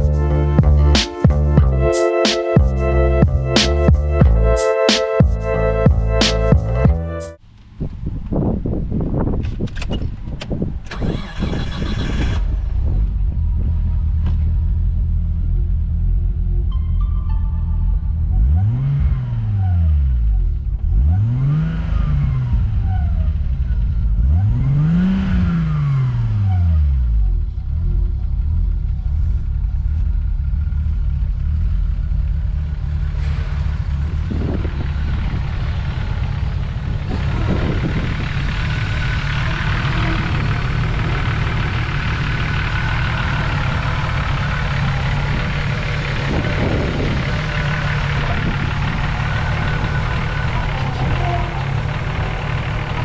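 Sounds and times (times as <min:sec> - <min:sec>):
car engine revving and idling: 0:11.0 - 0:16.8, 0:18.1 - 0:53.0.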